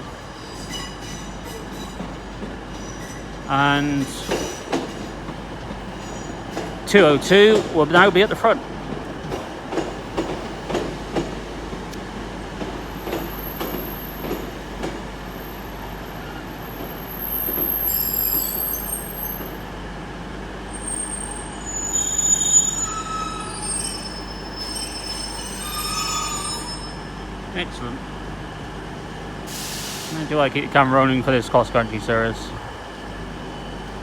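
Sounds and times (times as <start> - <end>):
diesel train rumble: 0.0 - 34.0
wheels squealing: 20.8 - 27.2.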